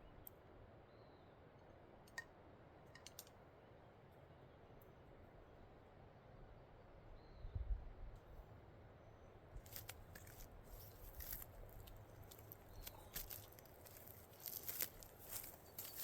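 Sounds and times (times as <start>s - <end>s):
crackling and crunching clicks: 9.6s - 16.0s.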